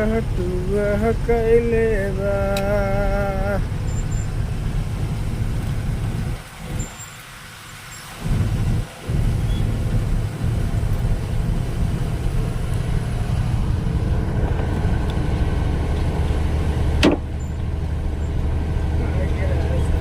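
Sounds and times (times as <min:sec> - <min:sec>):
vehicle engine rumbling: 0:00.0 - 0:20.0
sharp knock: 0:17.0 - 0:17.3.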